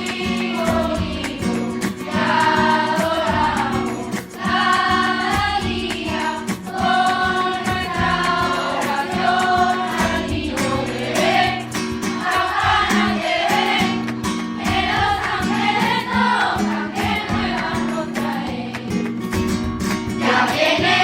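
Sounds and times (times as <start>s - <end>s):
choir singing a carol: 0.0s - 19.0s, 20.2s - 21.0s
instrumental backing with beat: 0.0s - 21.0s.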